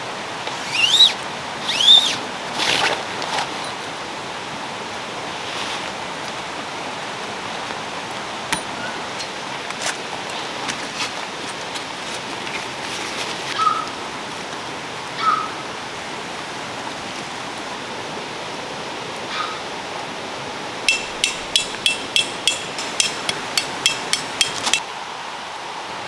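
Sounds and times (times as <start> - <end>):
stream rushing: 0.0 - 12.0
short high squeal: 0.6 - 2.2.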